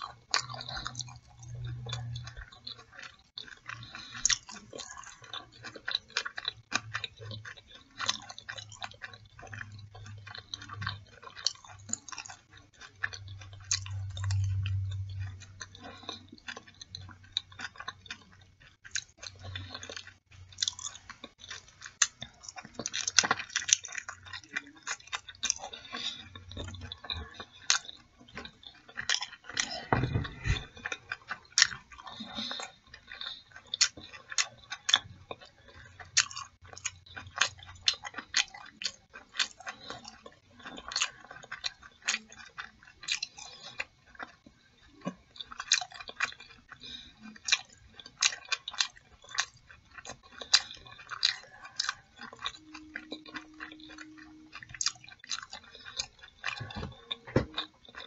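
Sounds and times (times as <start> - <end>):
person chewing food: 0.0 - 58.0
dull low thump: 29.9 - 30.7.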